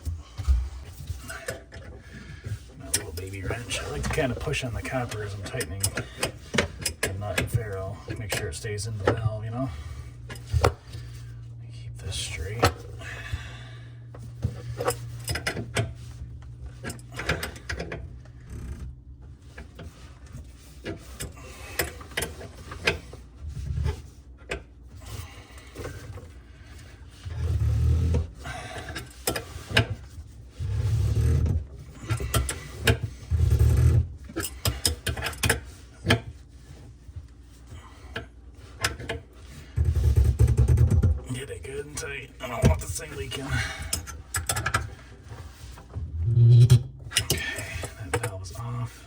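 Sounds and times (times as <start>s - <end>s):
dull low bumps: 45.9s - 47.2s.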